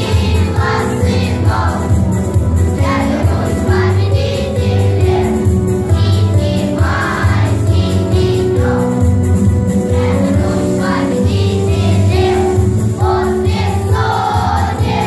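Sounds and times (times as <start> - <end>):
children's choir singing: 0.0 - 15.0
instrumental backing track: 0.0 - 15.0.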